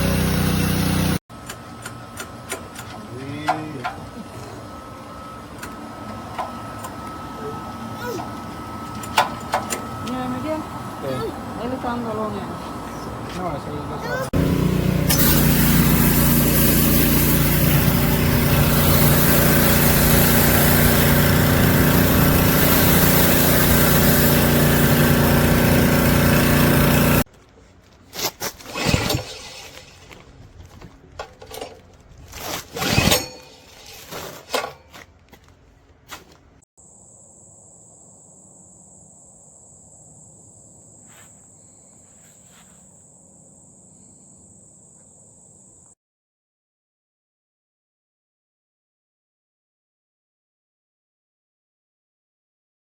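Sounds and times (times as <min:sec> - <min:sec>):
pressure washer engine running: 0:00.0 - 0:01.2, 0:13.1 - 0:27.3
hissing water spray: 0:14.4 - 0:27.2
steady high whine: 0:36.8 - 0:45.9.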